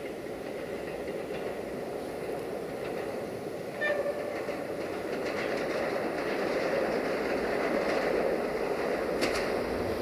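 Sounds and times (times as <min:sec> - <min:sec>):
clicks over rail joints: 0:00.0 - 0:09.9
train wheels rumbling on rails: 0:00.0 - 0:10.0
wheel squeal: 0:03.8 - 0:04.4.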